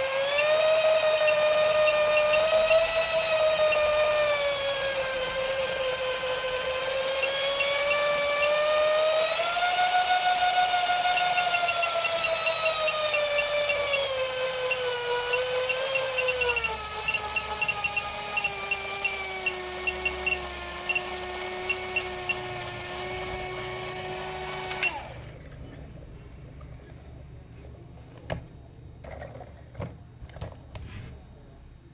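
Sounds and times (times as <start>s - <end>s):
small electric motor whining: 0.0s - 25.4s.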